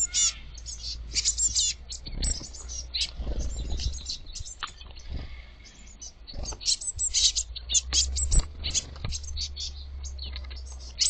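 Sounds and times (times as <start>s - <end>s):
birds chirping and twittering: 0.0s - 11.0s
low steady rumble: 0.3s - 11.0s.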